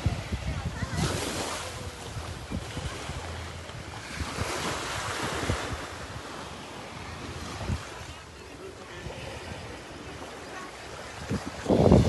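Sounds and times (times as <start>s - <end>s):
wind buffeting microphone: 0.0s - 8.2s, 10.8s - 12.0s
ocean surf washing on beach: 0.0s - 12.0s.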